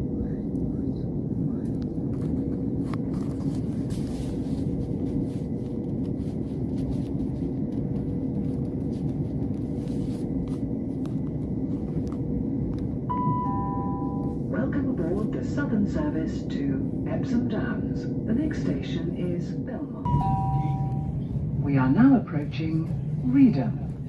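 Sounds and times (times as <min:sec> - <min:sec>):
faint hum: 0:00.0 - 0:24.0
train rumble inside carriage: 0:00.0 - 0:24.0.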